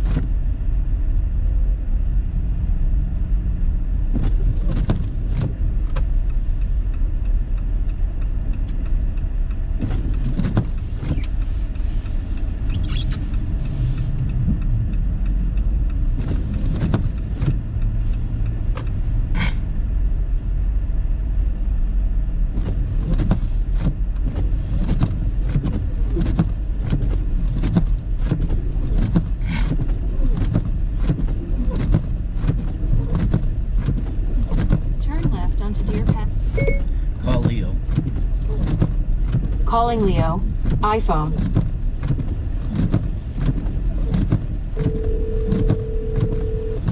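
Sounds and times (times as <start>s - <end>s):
car road and engine rumble: 0.0s - 46.9s.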